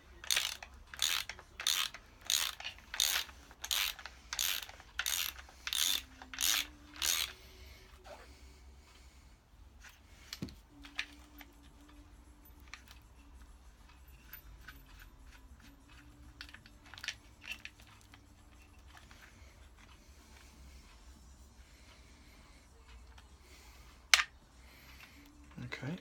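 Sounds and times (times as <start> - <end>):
metal parts clicking and tapping: 0.2 - 7.3, 9.8 - 20.5.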